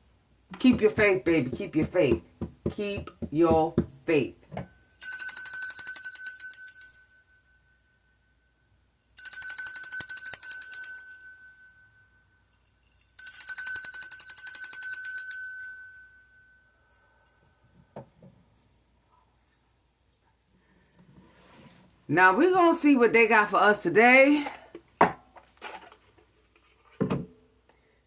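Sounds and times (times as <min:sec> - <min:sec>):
small metal bell ringing: 0:04.6 - 0:17.4.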